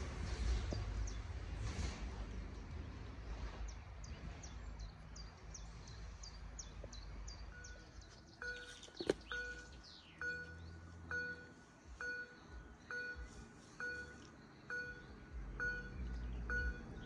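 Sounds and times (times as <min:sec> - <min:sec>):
train rumble: 0:00.0 - 0:17.0
bird chirping: 0:03.7 - 0:17.0.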